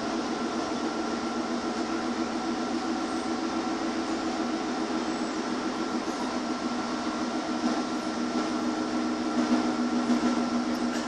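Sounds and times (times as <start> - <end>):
train diesel engine humming: 0.0 - 11.0.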